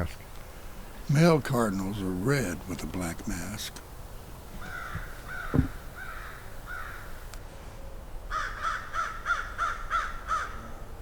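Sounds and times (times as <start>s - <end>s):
crows cawing: 4.6s - 7.3s, 8.3s - 10.8s
low thump: 4.9s - 5.8s.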